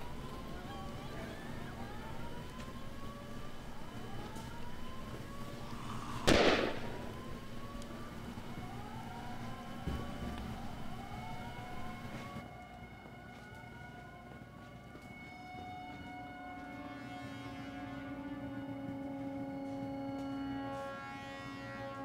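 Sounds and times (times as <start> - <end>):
low steady hum: 0.0 - 12.5
sirens wailing: 0.0 - 22.0
loud bang: 6.2 - 7.2.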